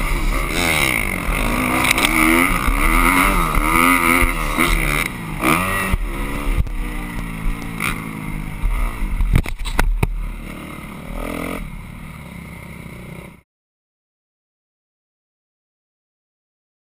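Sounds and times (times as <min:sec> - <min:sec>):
motocross bike engine revving: 0:00.0 - 0:13.4.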